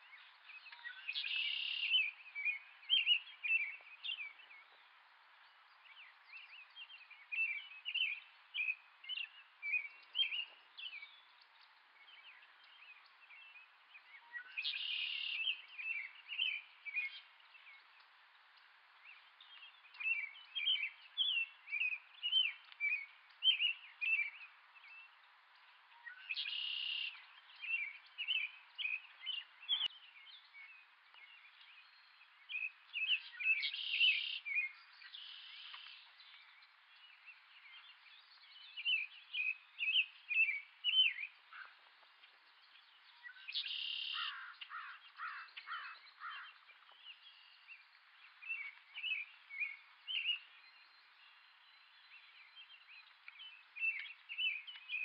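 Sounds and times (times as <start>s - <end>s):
long noisy bird calls: 19.1s - 55.0s.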